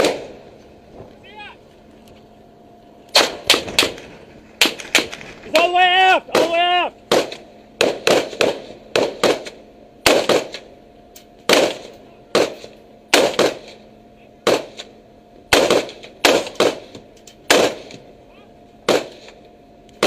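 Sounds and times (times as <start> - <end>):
gunshots: 0.0 - 0.4, 3.1 - 10.7, 11.5 - 13.8, 14.4 - 14.9, 15.5 - 18.0, 18.8 - 19.4.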